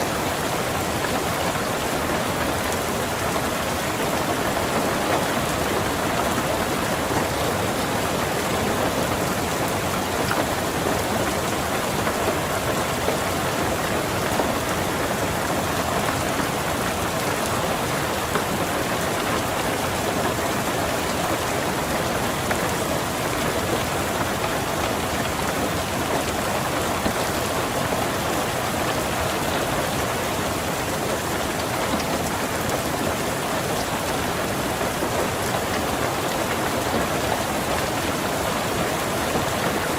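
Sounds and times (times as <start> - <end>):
rain on a car roof: 0.0 - 39.9.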